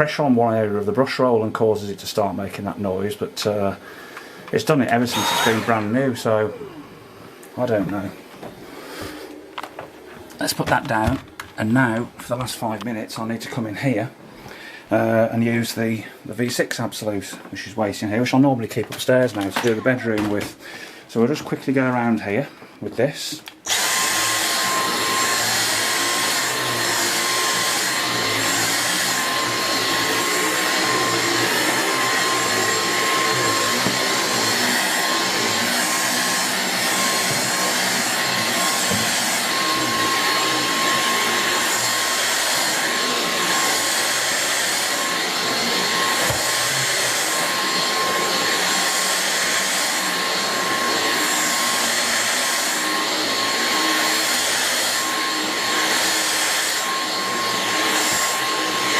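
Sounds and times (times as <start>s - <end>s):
vacuum cleaner running: 2.5s - 11.2s, 23.6s - 58.9s.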